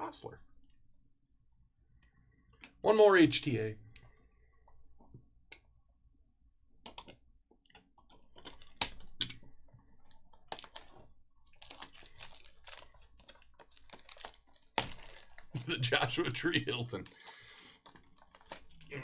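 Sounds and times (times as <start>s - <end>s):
trading cards clicking and crinkling: 6.8s - 19.0s.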